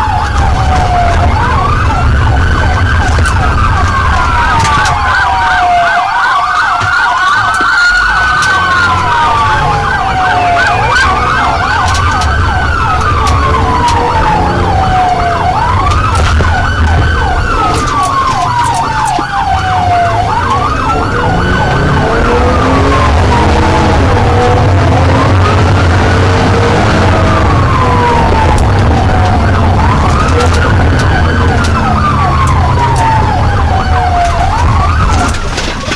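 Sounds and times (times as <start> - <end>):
police siren wailing: 0.0 - 35.9
siren yelping: 0.0 - 35.9
vehicle engine rumbling: 0.0 - 35.9.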